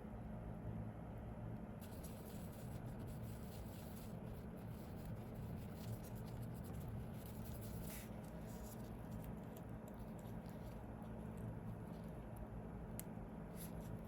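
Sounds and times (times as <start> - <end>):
steady low hum: 0.0 - 14.0
fine scratching and rubbing: 1.8 - 9.4.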